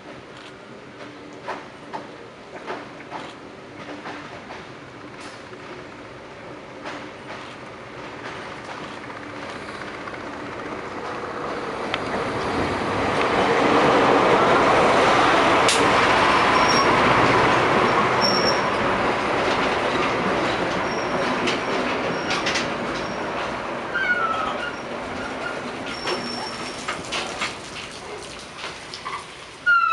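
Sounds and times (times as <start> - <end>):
diesel locomotive rumble: 0.0 - 27.9
train wheels clattering: 1.0 - 6.1, 6.7 - 13.7, 15.5 - 27.8
high-pitched wheel squeals: 16.5 - 16.9, 18.2 - 18.8, 23.9 - 26.8, 29.6 - 29.9.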